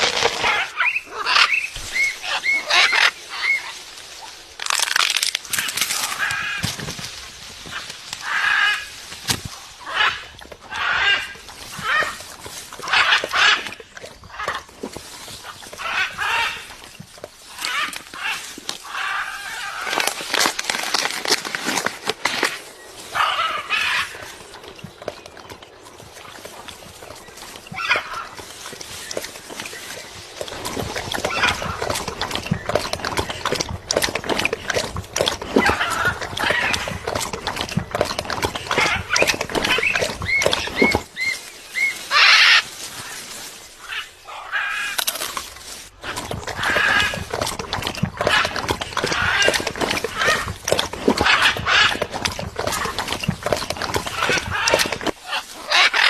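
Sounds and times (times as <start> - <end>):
parrot calling harshly: 54.2 - 56.0.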